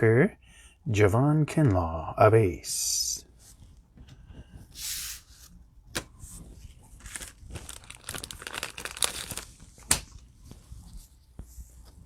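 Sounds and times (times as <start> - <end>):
foil wrapper crinkling and tearing: 7.0 - 10.2.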